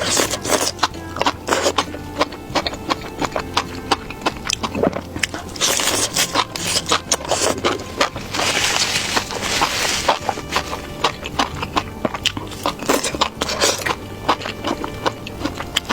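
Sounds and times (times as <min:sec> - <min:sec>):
eating clicks and crunches: 0:00.0 - 0:15.9
crackling scraping noise: 0:01.4 - 0:15.9.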